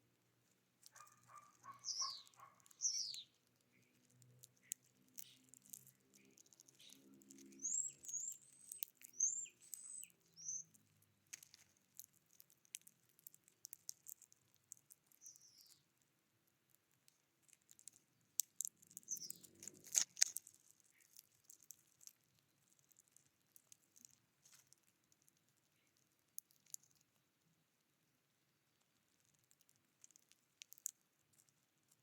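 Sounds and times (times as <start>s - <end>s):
songbirds chirping: 0.0s - 11.6s, 14.8s - 16.0s, 17.8s - 21.6s.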